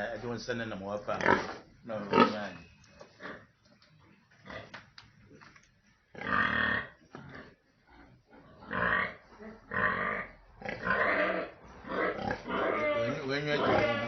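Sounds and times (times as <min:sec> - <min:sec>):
pigs calling loudly: 0:01.1 - 0:03.6, 0:06.1 - 0:14.0.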